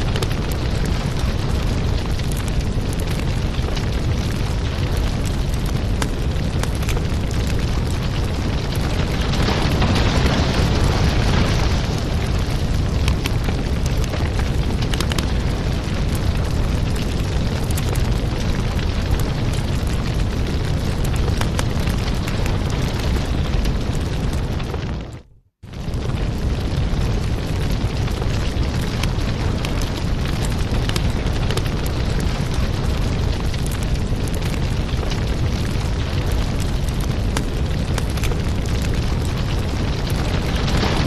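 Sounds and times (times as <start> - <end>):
wood fire crackling: 0.0 - 41.0.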